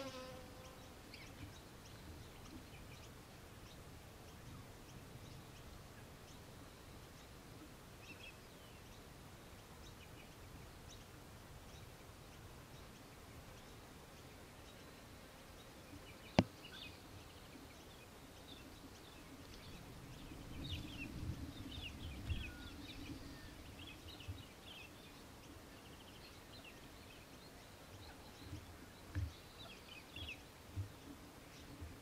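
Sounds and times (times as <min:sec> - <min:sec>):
faint bird chirps: 0:11.7 - 0:31.7.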